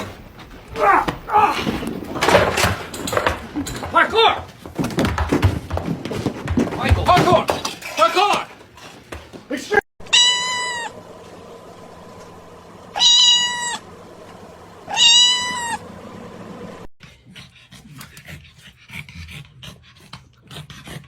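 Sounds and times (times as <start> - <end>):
cat meowing: 10.0 - 11.0, 12.9 - 13.8, 14.9 - 15.8.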